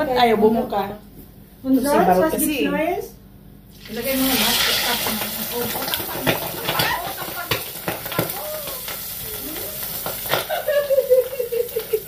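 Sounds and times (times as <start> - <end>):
pork deep-frying in oil: 3.7 - 12.0.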